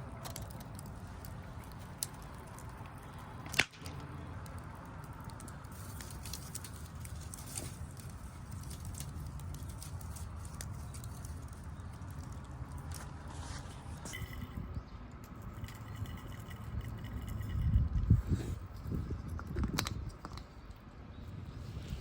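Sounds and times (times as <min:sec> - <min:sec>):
wood fire crackling: 0:00.0 - 0:17.6.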